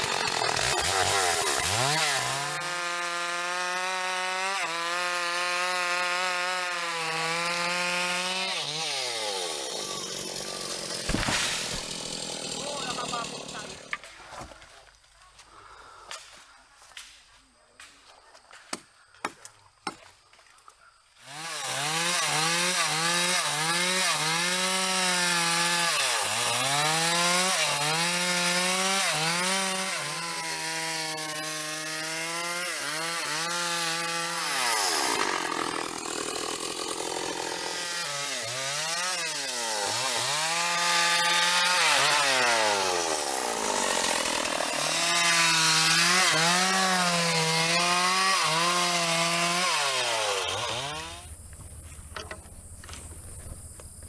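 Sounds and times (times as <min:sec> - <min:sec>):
power saw running: 0:00.0 - 0:02.8, 0:07.1 - 0:14.0, 0:21.3 - 0:51.2.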